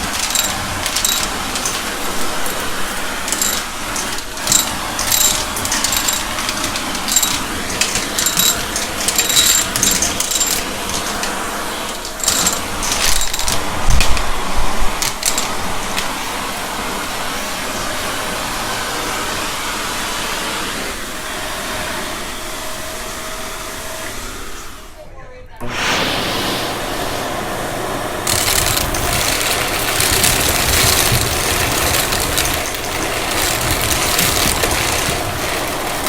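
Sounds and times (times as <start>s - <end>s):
debris clicking and rattling: 0.0s - 16.2s, 28.3s - 36.0s
vacuum cleaner running: 0.0s - 36.0s.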